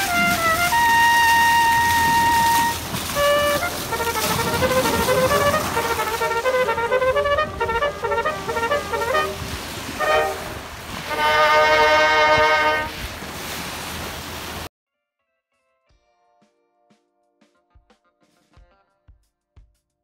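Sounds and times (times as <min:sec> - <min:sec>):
brass band playing a march: 0:00.0 - 0:13.1.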